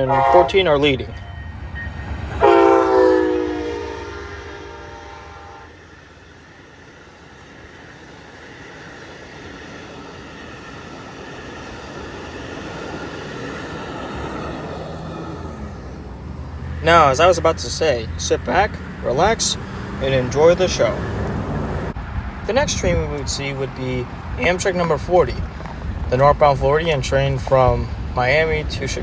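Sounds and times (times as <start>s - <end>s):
train horn blast: 0.0s - 5.8s
train rumbling along rails: 0.0s - 29.0s.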